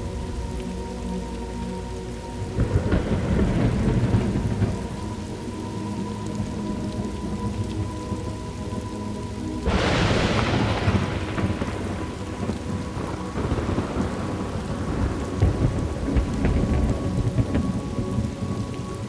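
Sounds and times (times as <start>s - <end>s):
steady rain: 0.0s - 19.0s
thunder clap and rumble: 2.4s - 8.9s, 9.6s - 19.0s.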